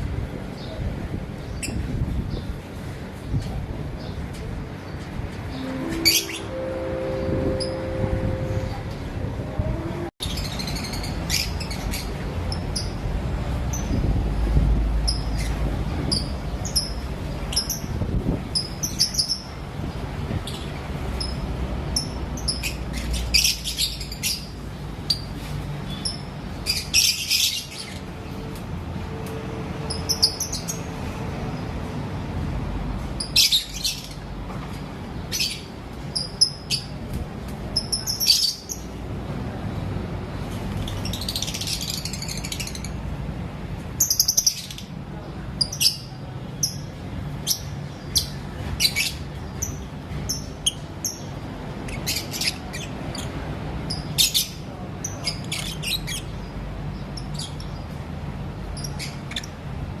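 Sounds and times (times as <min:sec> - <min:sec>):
lovebirds chirping: 0:05.5 - 0:08.8.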